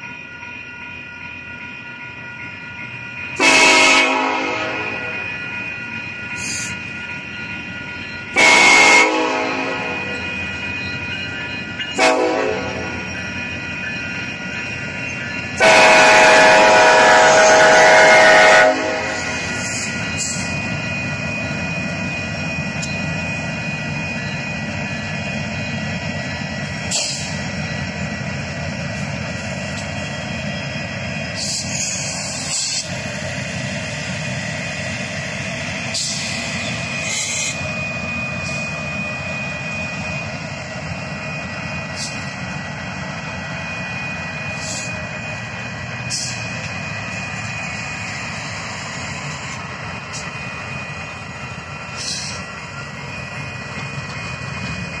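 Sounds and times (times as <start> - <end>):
freight train rumbling on rails: 0.0 - 55.0
steady high tone: 0.0 - 55.0.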